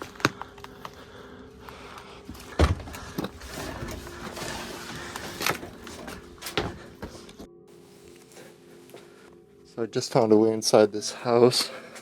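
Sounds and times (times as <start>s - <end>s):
rustling and scraping: 1.7s - 9.3s.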